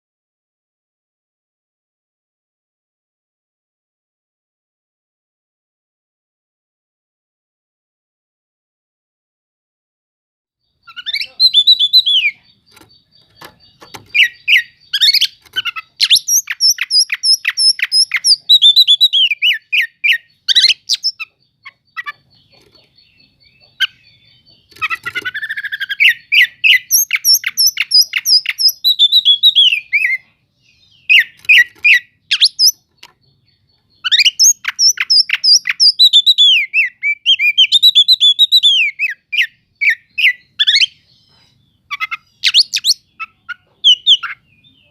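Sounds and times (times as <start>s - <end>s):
songbird singing: 10.6s - 44.9s.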